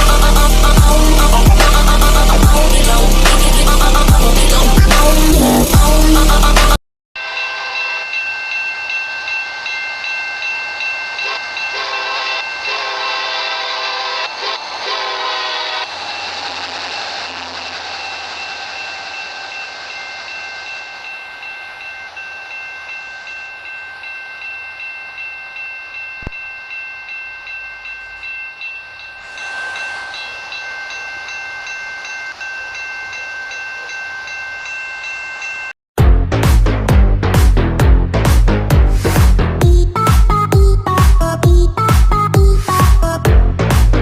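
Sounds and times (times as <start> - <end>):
train wheels on rails: 7.4 - 35.7
high steady squeal: 8.8 - 25.6, 28.8 - 35.5
train air horn: 11.8 - 16.4.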